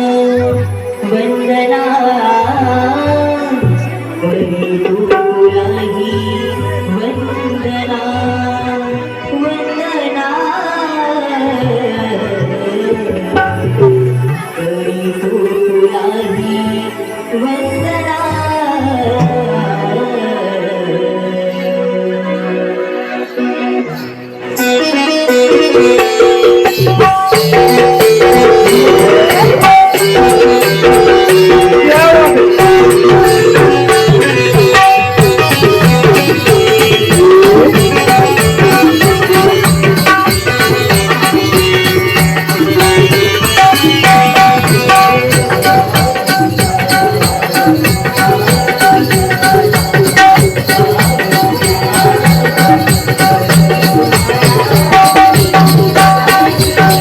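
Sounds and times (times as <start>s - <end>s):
instrumental melody: 11.7s - 57.0s
jingling percussion: 24.5s - 57.0s
hand drum rhythm: 25.4s - 57.0s.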